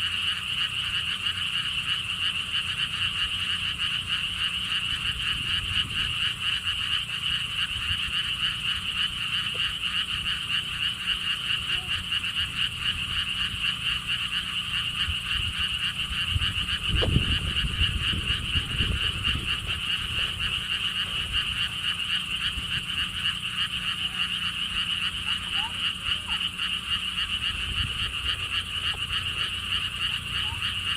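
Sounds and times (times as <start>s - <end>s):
frogs chorus trilling: 0.0s - 30.9s
low rumble: 15.0s - 21.8s.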